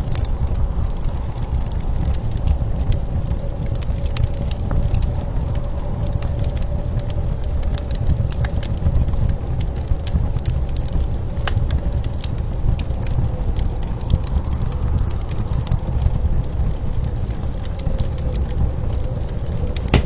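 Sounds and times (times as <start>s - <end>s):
low rumble of blizzard wind: 0.0s - 18.6s.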